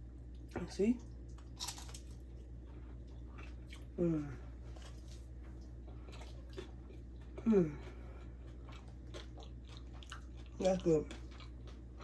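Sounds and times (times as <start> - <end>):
steady low hum: 0.0 - 12.0
person chewing food: 0.3 - 12.0
person humming mmm: 4.0 - 4.4, 7.4 - 8.0.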